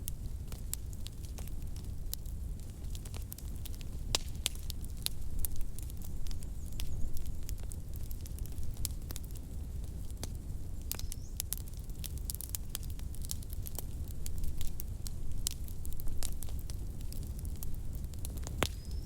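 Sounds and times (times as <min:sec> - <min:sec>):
fire crackling and popping: 0:00.0 - 0:19.0
low rumble of flames: 0:00.0 - 0:19.0.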